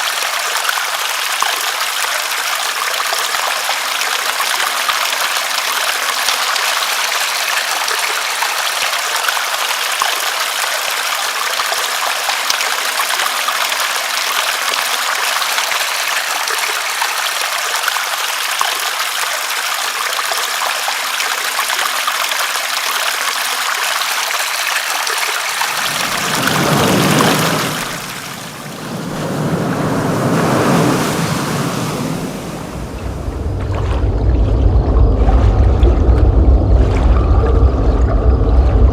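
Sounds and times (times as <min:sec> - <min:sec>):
deep surging water: 0:00.0 - 0:38.9
dense rain hiss: 0:23.6 - 0:33.7.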